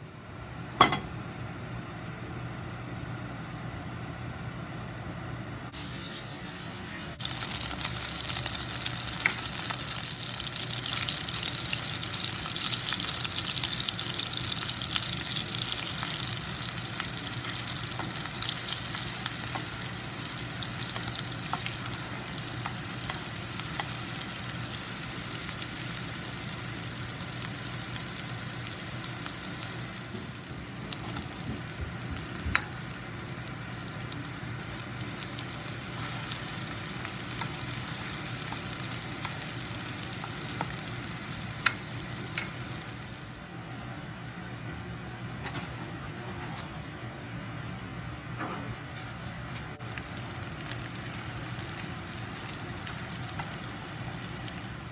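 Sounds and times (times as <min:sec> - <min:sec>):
food sizzling in a pan: 0:05.8 - 0:43.5, 0:49.8 - 0:54.9.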